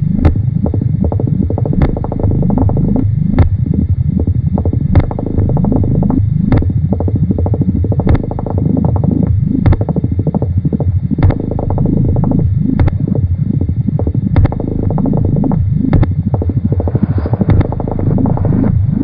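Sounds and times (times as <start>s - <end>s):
warbling pulsing electronic rumble: 0.0s - 19.0s
sharp clicks: 15.9s - 16.5s.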